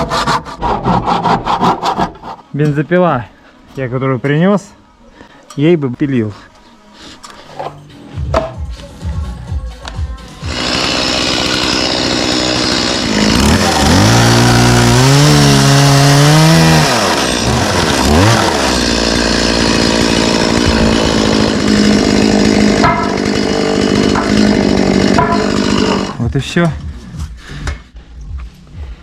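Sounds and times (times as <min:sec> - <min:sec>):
chainsaw sawing wood posts: 0:00.0 - 0:02.5, 0:10.4 - 0:27.2
chainsaw revving and running: 0:10.4 - 0:26.2.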